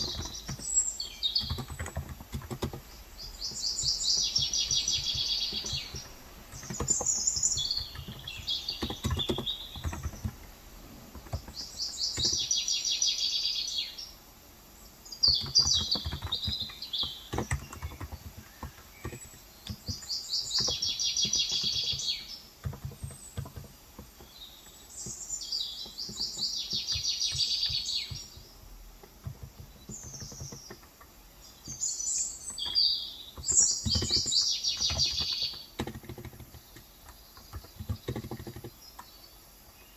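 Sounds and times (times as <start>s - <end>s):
keyboard typing clicks: 0.0s - 12.5s, 15.3s - 24.2s, 32.4s - 39.1s
birds singing trilled phrases: 0.0s - 14.2s, 14.8s - 39.9s.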